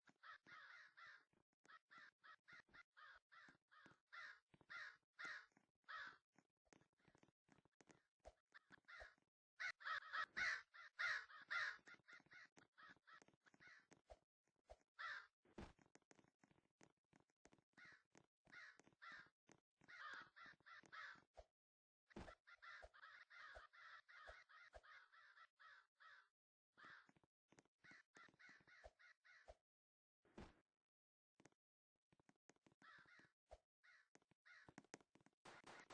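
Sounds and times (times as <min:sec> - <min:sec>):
bird calling in rasping bursts: 0:08.9 - 0:13.0.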